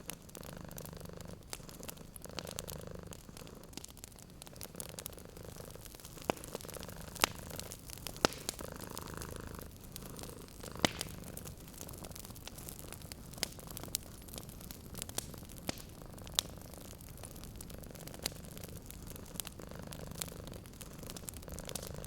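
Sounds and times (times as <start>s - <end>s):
cat purring: 0.0s - 22.0s
wood fire crackling: 0.0s - 22.0s.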